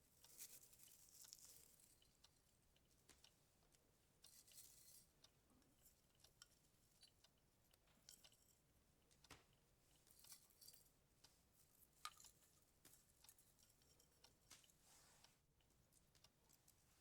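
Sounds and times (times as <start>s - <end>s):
small objects clicking and tapping: 11.8s - 14.8s.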